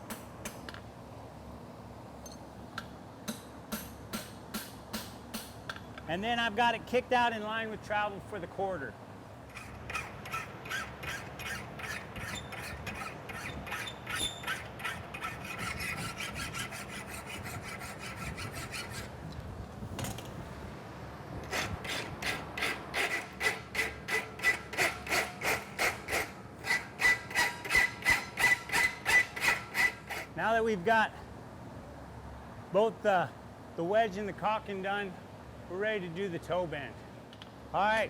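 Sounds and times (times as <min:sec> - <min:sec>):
low fan hum: 0:00.0 - 0:38.0.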